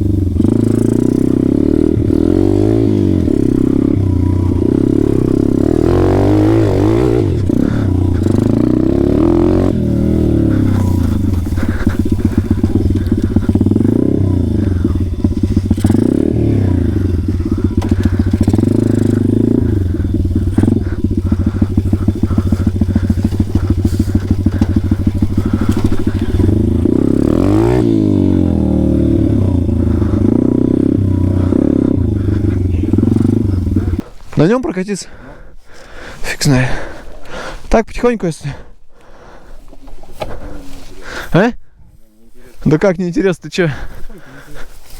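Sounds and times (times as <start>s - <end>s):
pit bike engine revving: 0.0s - 34.5s.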